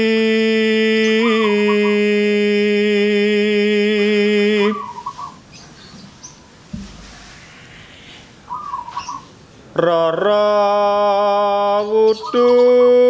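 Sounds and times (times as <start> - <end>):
man singing a long note: 0.0 - 4.9, 9.8 - 13.0
dove cooing: 4.6 - 9.4
soft thump: 5.9 - 7.5.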